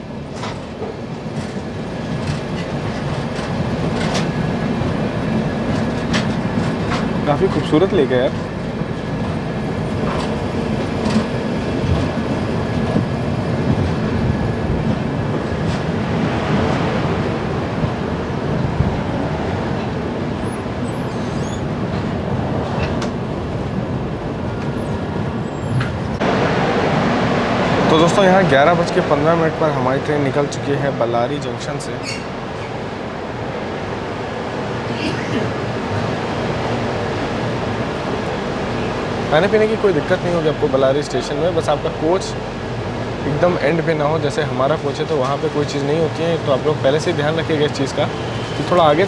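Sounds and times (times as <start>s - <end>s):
train running gear rumble: 0.0s - 49.0s
wheel clacks over rail joints: 0.2s - 16.9s, 19.7s - 23.2s.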